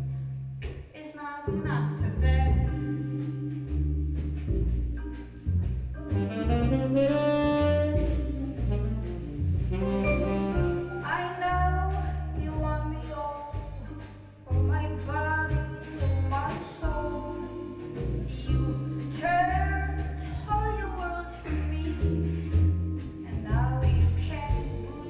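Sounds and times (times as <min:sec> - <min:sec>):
bass line: 0:00.0 - 0:00.8, 0:01.5 - 0:25.0
melodic lead line: 0:02.7 - 0:12.4
live jazz band playing: 0:02.7 - 0:25.0.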